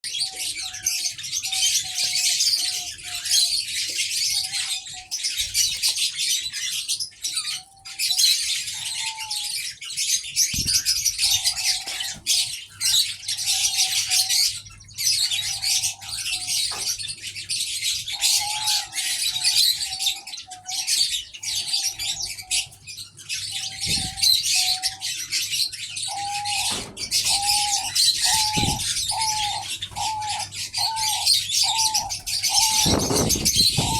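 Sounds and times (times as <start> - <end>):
birds chirping: 0.0 - 33.9
doves cooing: 7.4 - 33.9.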